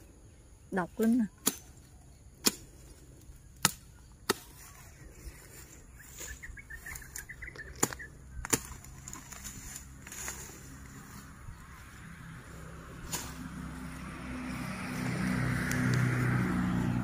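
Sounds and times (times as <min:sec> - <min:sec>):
small bird twittering: 0:05.9 - 0:08.8.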